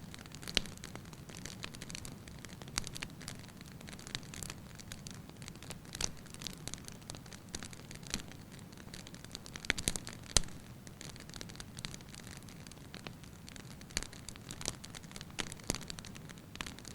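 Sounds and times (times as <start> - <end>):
firewood crackling and popping: 0.0 - 16.9.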